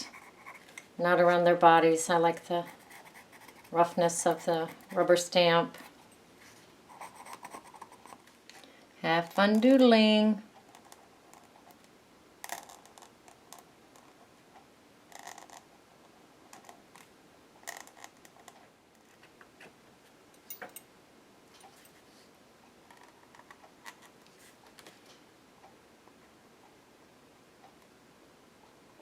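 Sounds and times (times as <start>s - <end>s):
pen scratching on paper: 0.0s - 0.6s, 2.6s - 5.2s, 6.9s - 8.2s.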